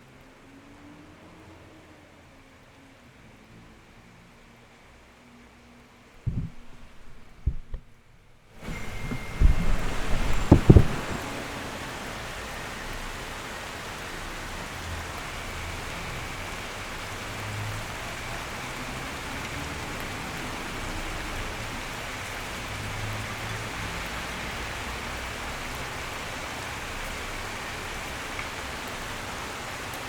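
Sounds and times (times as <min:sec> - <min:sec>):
steady rain hiss: 0:00.0 - 0:30.0
heavy low thumps: 0:06.3 - 0:11.3.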